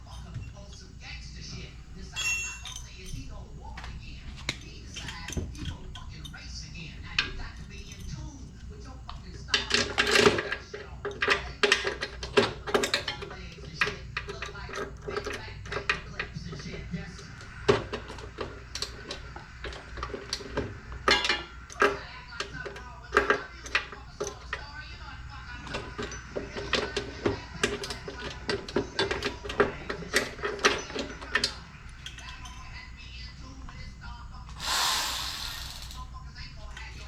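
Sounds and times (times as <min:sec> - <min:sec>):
metallic clinks of hand tools: 0:02.1 - 0:03.4, 0:07.2 - 0:08.3, 0:27.6 - 0:32.7
hand tools clicking on metal: 0:04.4 - 0:06.4, 0:07.1 - 0:24.8, 0:25.5 - 0:32.7, 0:34.6 - 0:36.1.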